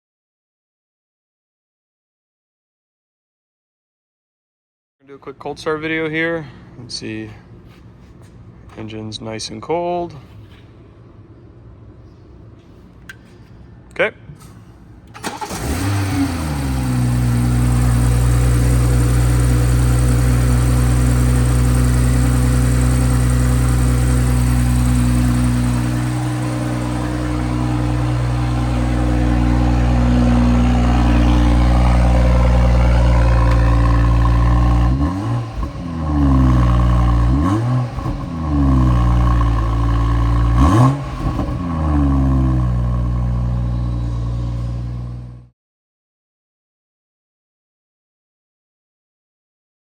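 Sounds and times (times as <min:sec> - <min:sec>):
engine revving: 0:15.2 - 0:45.5
car engine idling fast: 0:15.3 - 0:45.4.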